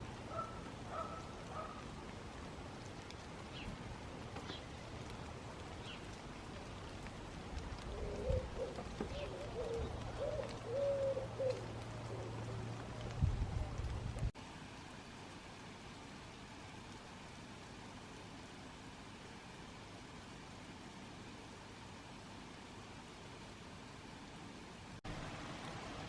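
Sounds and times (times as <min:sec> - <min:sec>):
garden birds calling: 0:00.0 - 0:14.3
background hiss: 0:00.0 - 0:26.0
pigeon cooing: 0:00.3 - 0:01.8, 0:07.7 - 0:13.8.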